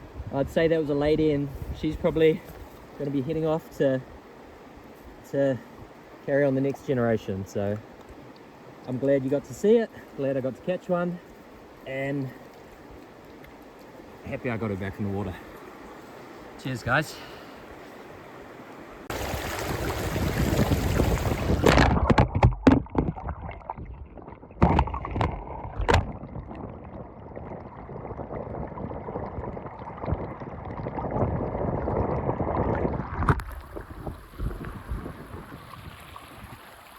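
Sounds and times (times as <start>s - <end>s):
wind buffeting microphone: 0.0s - 2.3s, 19.1s - 36.8s
rushing river water: 0.0s - 36.9s.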